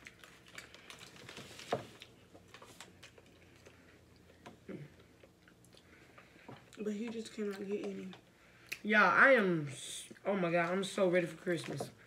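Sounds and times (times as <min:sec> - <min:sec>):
chewing and wet mouth sounds: 0:00.0 - 0:08.9.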